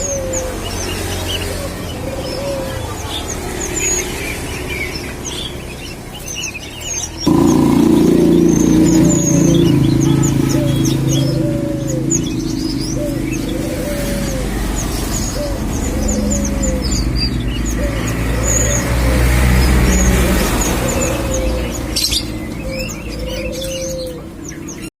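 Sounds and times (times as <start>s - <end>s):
dove cooing: 0.0s - 4.5s, 7.3s - 24.7s
small birds chirping: 0.0s - 24.9s.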